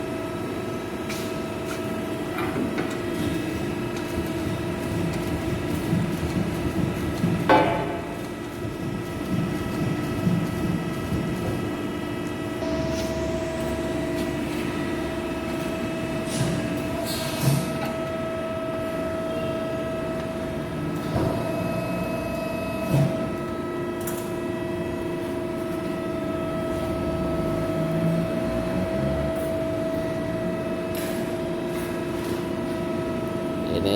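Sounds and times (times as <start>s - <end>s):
machine knocks: 5.5s - 8.1s
machine whine: 7.7s - 31.4s
hydraulic press humming: 12.5s - 23.7s.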